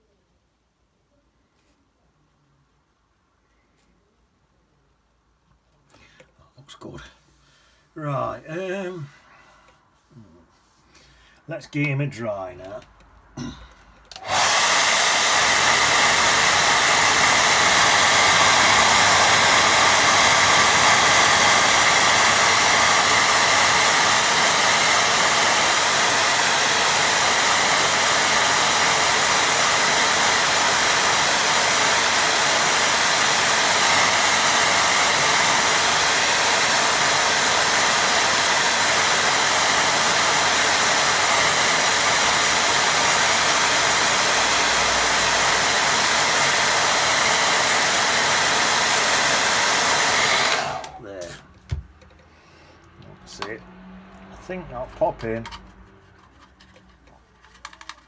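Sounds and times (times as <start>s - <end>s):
hair dryer running: 14.1s - 51.9s, 52.8s - 56.0s.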